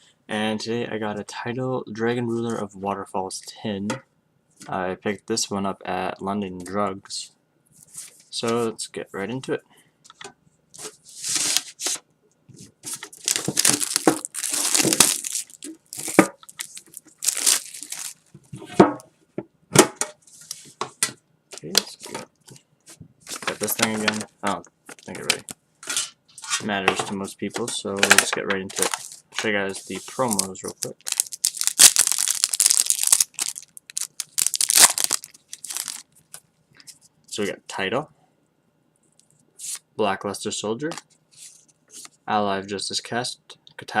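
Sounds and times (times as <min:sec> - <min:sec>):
plastic packaging crinkling: 0:12.9 - 0:18.4, 0:28.8 - 0:29.2, 0:29.8 - 0:36.4
plastic wrap tearing and crackling: 0:13.1 - 0:18.3, 0:30.2 - 0:36.2.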